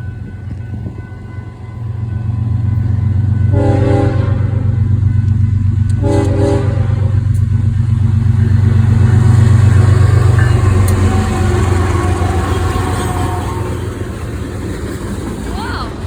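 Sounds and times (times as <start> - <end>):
freight train rumbling: 0.0 - 16.0
train horn blast: 3.5 - 4.9, 5.9 - 7.4, 8.7 - 14.1.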